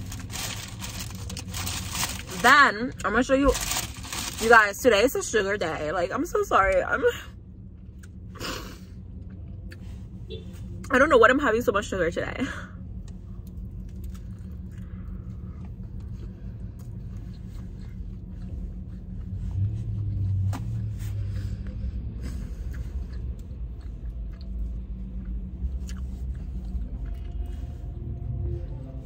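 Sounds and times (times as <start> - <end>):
person chewing: 13.0 - 20.5, 21.4 - 27.7.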